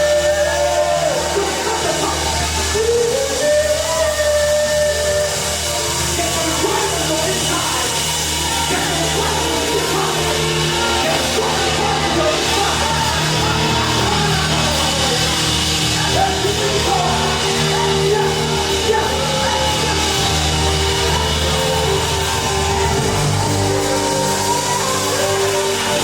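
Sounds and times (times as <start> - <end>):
band holding sustained chords: 0.0 - 26.0
voices singing: 0.0 - 26.0.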